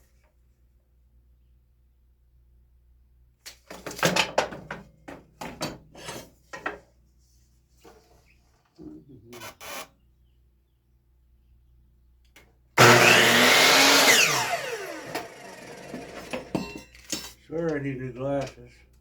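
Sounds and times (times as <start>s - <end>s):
electric saw cutting wood: 12.8s - 16.6s.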